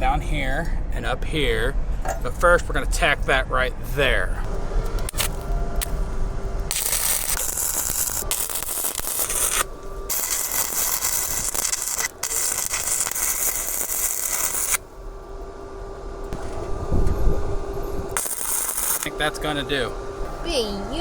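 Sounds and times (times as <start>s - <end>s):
arc welder sizzling: 4.4s - 21.0s.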